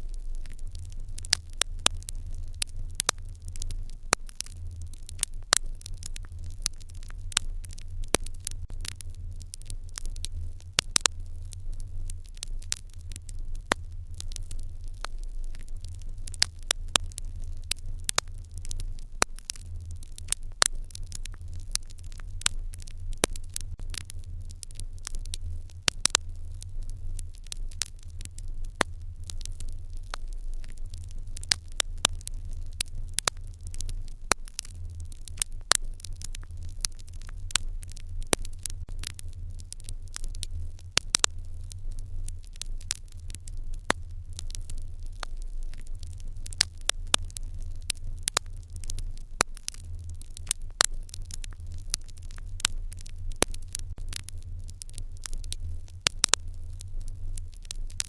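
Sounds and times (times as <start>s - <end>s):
fire popping and snapping: 0.0s - 58.0s
steady low rumble: 0.0s - 58.0s.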